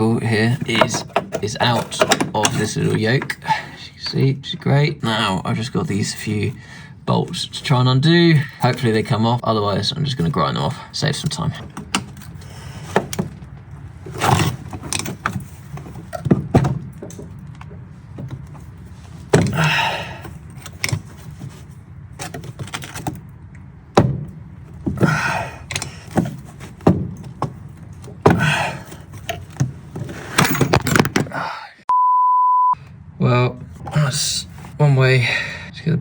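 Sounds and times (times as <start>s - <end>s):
metal clanks and knocks: 0.5s - 3.4s, 11.3s - 23.3s, 23.9s - 31.3s.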